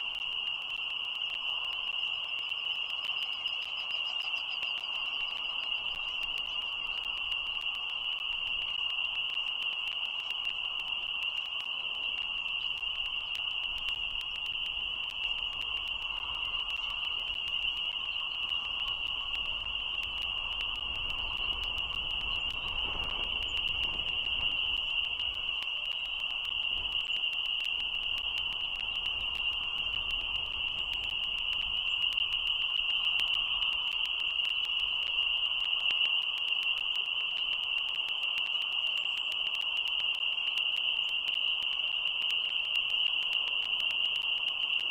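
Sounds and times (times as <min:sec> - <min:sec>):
fainter lower frog chorus: 0:00.0 - 0:44.9
chorus of frogs calling: 0:01.9 - 0:07.2.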